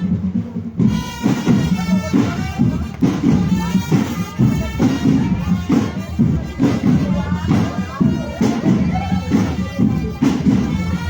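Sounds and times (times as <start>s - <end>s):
band melody: 0.0s - 11.0s
marching drums beating: 0.0s - 11.0s.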